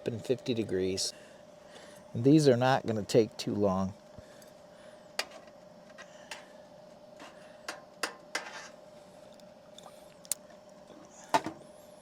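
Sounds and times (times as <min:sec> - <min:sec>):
toaster oven hum: 0:00.0 - 0:12.0.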